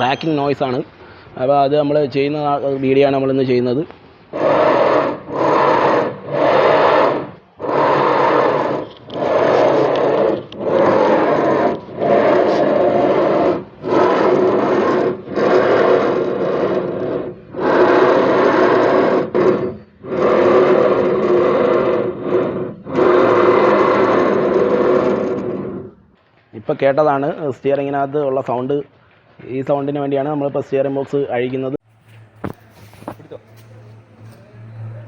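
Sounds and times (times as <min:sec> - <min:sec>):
steering box grinding: 0:03.5 - 0:26.1.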